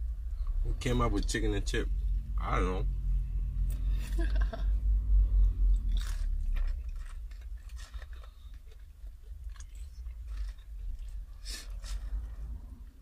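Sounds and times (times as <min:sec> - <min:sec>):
low steady rumble: 0:00.0 - 0:13.0
people chewing crispy chicken: 0:05.4 - 0:12.6.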